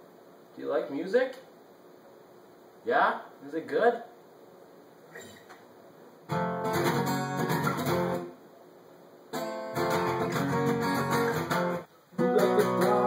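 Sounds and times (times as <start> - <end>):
guitar chords strummed: 6.3 - 8.4, 9.3 - 13.0.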